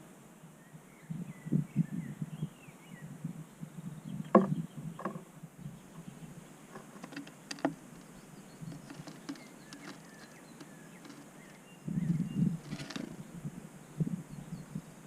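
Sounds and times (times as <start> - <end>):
faint bird chirps: 0.6 - 15.0
birds pecking on wooden table: 6.7 - 11.7, 12.6 - 13.3.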